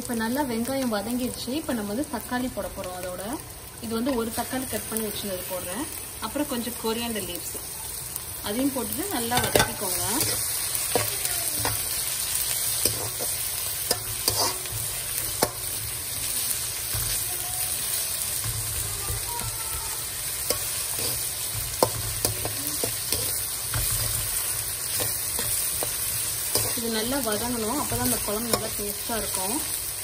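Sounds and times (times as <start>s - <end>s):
onions sizzling in oil: 0.0s - 30.0s
metal spatula scraping pan: 9.3s - 15.7s.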